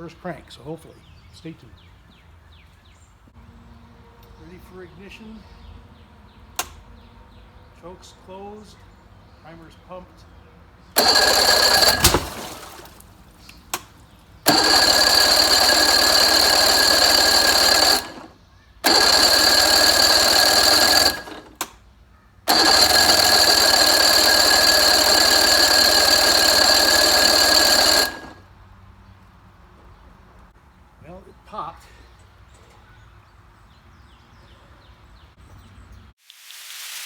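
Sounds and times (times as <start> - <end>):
outboard engine starter cranking: 11.0 - 21.8, 22.5 - 28.4.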